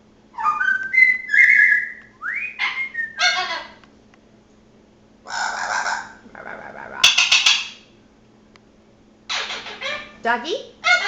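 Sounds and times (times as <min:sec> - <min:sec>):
parrot whistling: 0:00.3 - 0:03.7
harsh parrot call: 0:05.3 - 0:07.7.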